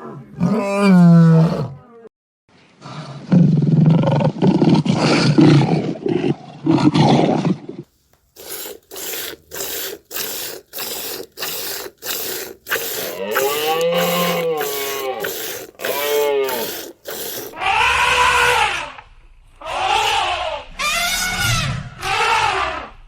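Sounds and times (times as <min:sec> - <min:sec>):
rasping strokes: 0:08.3 - 0:17.7.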